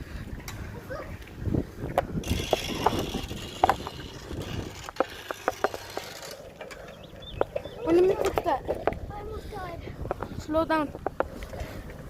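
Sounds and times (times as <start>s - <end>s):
bicycle clattering and clicking: 1.9s - 9.0s.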